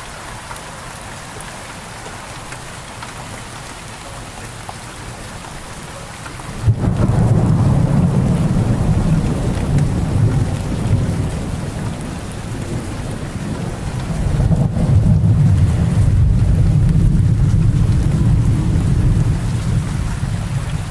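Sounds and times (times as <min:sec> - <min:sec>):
steady rain: 0:00.0 - 0:20.9
thunder rumbling: 0:06.6 - 0:20.9.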